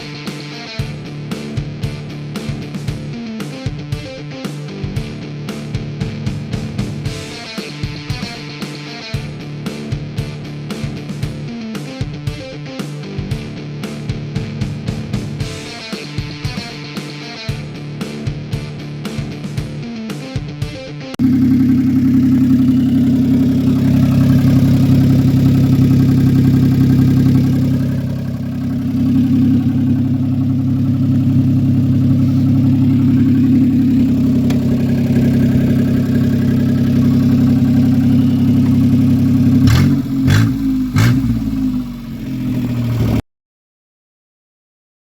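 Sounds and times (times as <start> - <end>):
engine throttle blips: 21.2 - 43.2
small engine idling: 21.2 - 43.2.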